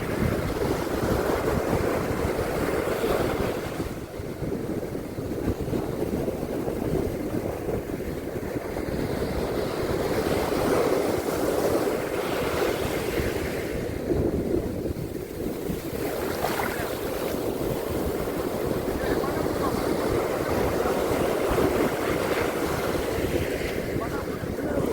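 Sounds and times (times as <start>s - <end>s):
waves washing onto beach: 0.0s - 24.9s
wind buffeting microphone: 0.0s - 24.9s.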